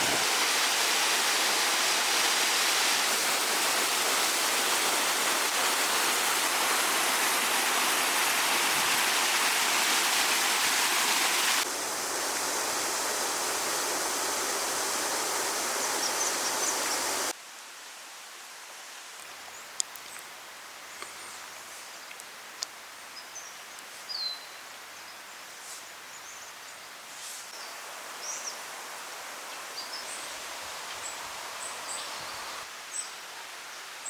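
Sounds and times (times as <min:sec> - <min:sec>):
creek water rushing: 0:00.0 - 0:17.4, 0:27.5 - 0:33.0.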